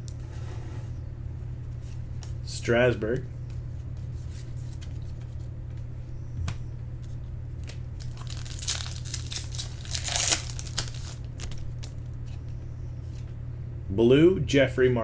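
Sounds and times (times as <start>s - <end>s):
steady low hum: 0.0s - 15.0s
foil pack tearing and crinkling: 7.6s - 12.1s.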